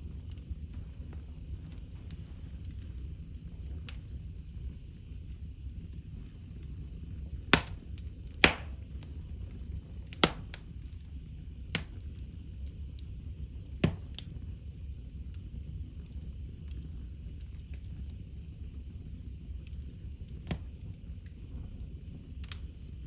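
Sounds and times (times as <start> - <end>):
fire rumbling: 0.0 - 23.0
sharp wood pops: 7.5 - 7.8, 8.4 - 8.8.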